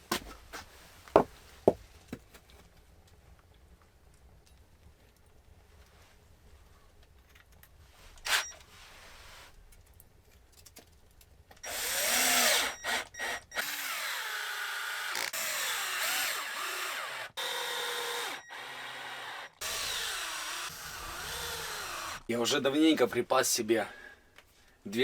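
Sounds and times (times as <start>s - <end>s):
handheld power tool running: 11.6s - 22.3s.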